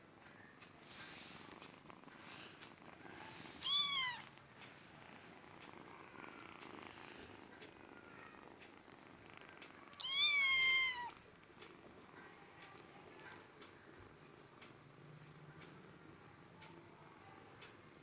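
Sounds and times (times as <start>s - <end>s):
faint rustling: 0.7s - 13.5s
cat meowing: 3.6s - 4.3s, 9.9s - 11.2s.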